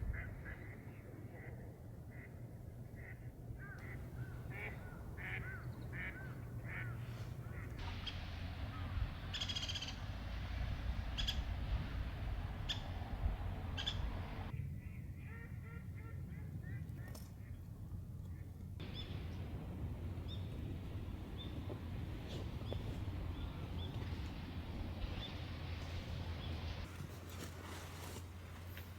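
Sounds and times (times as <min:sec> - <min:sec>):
swans honking: 0:03.7 - 0:14.5
steady rushing noise: 0:03.8 - 0:14.5, 0:18.8 - 0:26.9.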